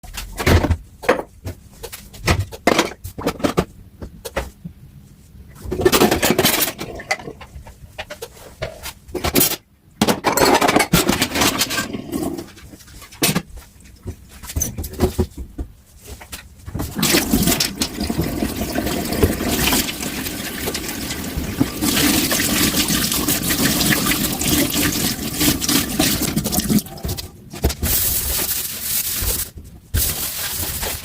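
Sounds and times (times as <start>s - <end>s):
running tap water: 16.9s - 27.2s.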